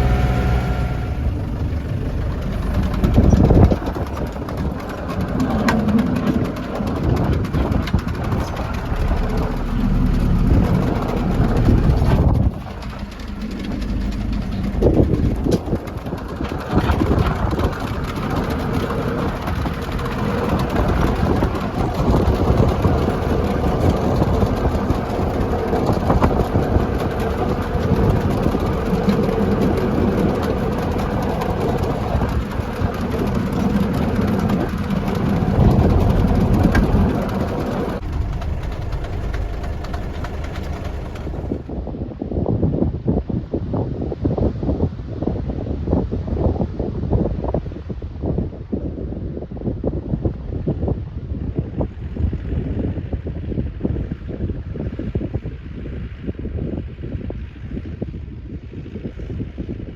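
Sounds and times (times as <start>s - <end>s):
snowblower through snow: 0.0s - 41.7s
tractor engine under load: 0.0s - 41.8s.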